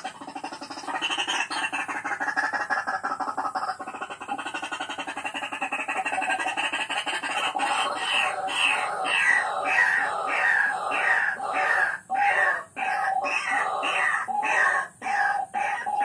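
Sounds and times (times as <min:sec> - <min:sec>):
fast-pulsing chorus of calls: 0:00.0 - 0:16.0
bird calling with harsh falling notes: 0:07.1 - 0:16.0.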